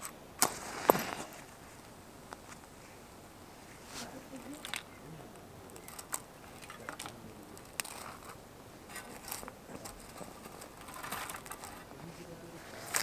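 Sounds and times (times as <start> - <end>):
soft rustling of small objects: 0.4 - 13.0.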